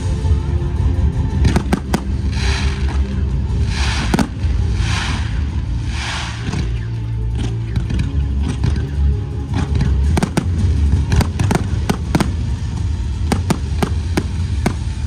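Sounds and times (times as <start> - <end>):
loud music with heavy bass: 0.0 - 15.0
fireworks bangs: 1.5 - 7.0, 10.2 - 15.0.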